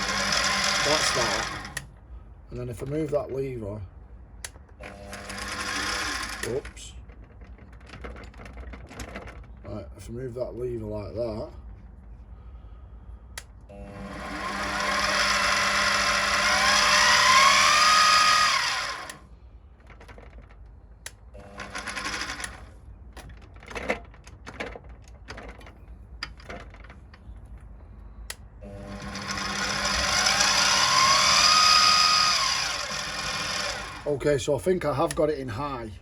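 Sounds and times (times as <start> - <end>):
milling machine spindle whine: 0.0 - 1.8, 5.1 - 6.9, 13.9 - 19.2, 21.6 - 22.6, 28.6 - 34.2.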